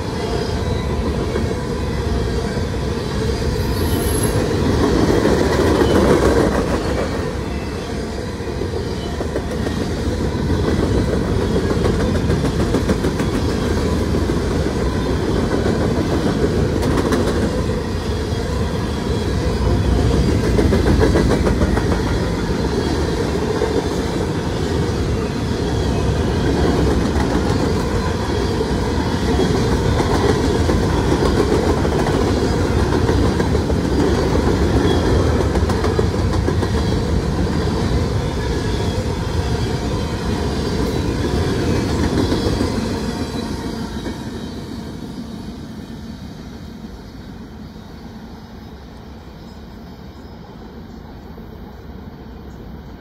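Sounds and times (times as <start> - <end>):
freight train wheels clattering: 8.8 - 44.8.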